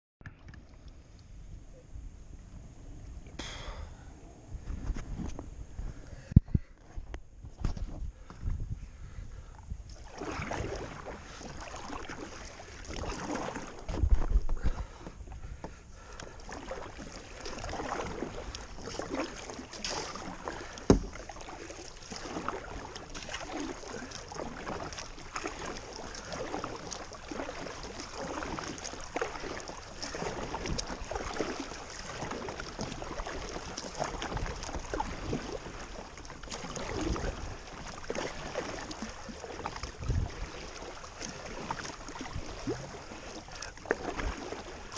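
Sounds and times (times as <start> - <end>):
paddle strokes splashing water: 6.8 - 44.9
low thump: 20.9 - 21.1.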